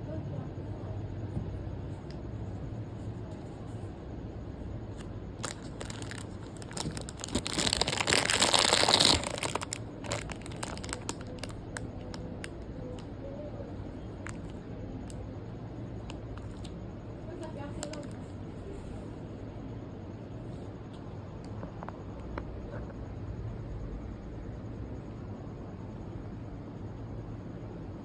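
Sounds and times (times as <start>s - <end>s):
crinkling handling noise: 4.9s - 13.1s, 14.0s - 15.2s, 16.0s - 16.7s, 17.4s - 19.2s.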